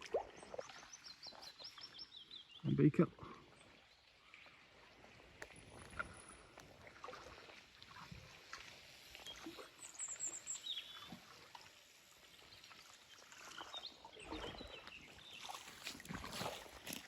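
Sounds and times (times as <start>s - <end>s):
small birds chirping: 0.4s - 3.0s.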